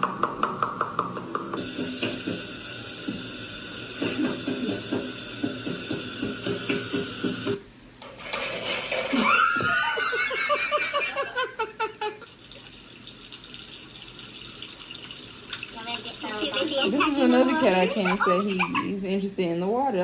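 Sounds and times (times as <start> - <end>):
water running from tap: 1.6 - 7.6, 12.2 - 19.0
laughter: 9.1 - 12.3, 16.8 - 19.1.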